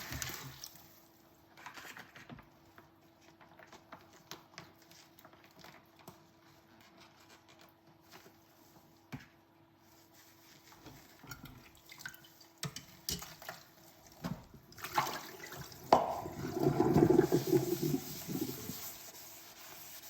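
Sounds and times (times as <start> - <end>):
tap water splashing on dishes: 10.8 - 18.8
dishes clinking in a sink: 10.9 - 17.6.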